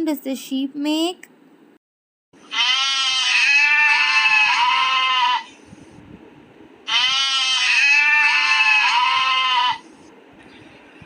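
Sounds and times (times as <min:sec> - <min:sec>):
sheep bleating: 0:02.4 - 0:05.5, 0:06.9 - 0:09.8.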